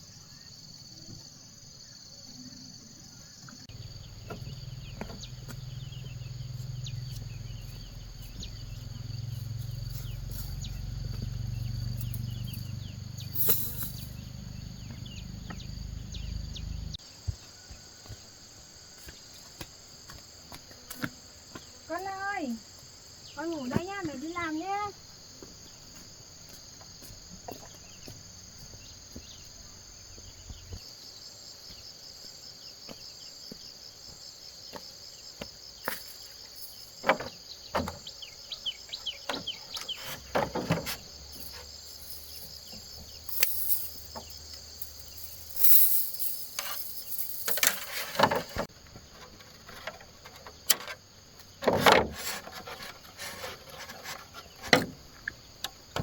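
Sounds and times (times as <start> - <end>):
insects chirring: 0.0 - 56.0
rustling noise: 39.8 - 55.1.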